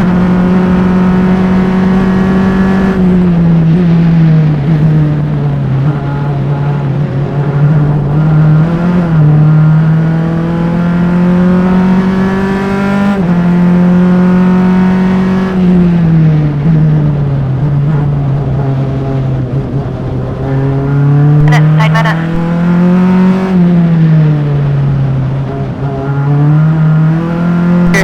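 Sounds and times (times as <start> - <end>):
race car engine at full throttle: 0.0 - 28.0.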